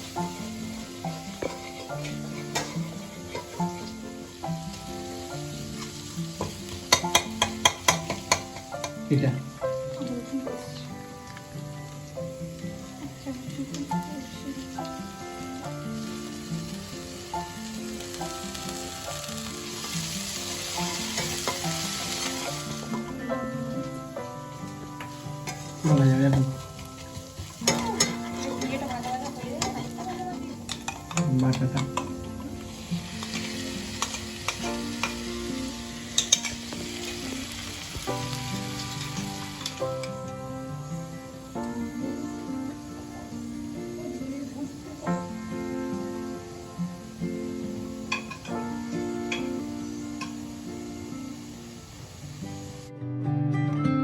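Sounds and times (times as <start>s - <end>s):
food sizzling in hot oil: 0.0s - 53.0s
background music melody: 0.0s - 54.0s
spatula clinking against pan: 1.3s - 3.9s, 5.7s - 9.1s, 25.0s - 26.5s, 27.4s - 32.2s, 33.2s - 35.2s, 36.2s - 36.8s, 48.1s - 48.6s, 49.3s - 49.6s.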